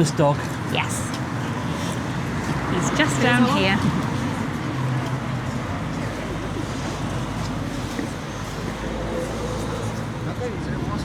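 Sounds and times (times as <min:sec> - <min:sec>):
faint voices: 0:00.0 - 0:11.0
traffic noise: 0:00.0 - 0:11.0.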